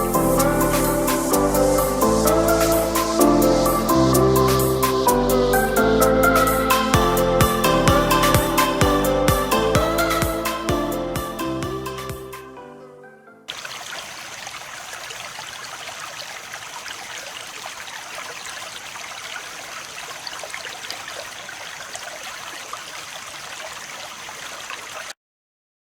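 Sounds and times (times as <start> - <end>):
running water: 13.5 - 25.2.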